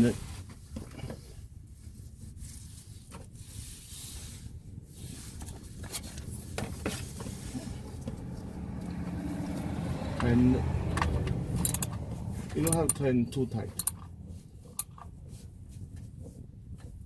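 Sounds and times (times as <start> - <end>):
wrench scraping and clicking: 10.9 - 13.1, 13.7 - 14.1.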